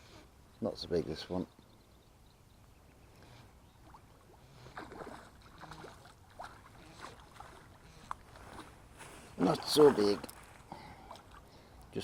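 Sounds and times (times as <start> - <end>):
faint water splashing: 3.1 - 12.0.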